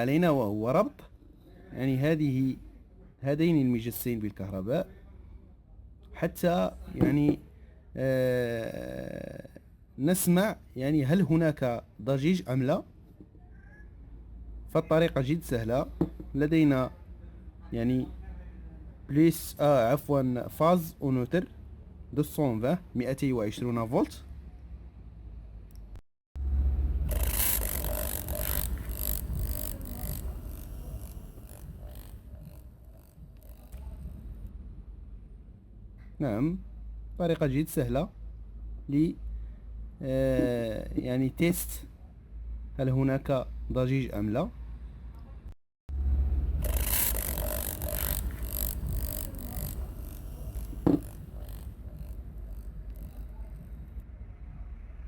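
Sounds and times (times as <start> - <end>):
small motor humming and rattling: 26.4 - 34.6, 45.9 - 54.0.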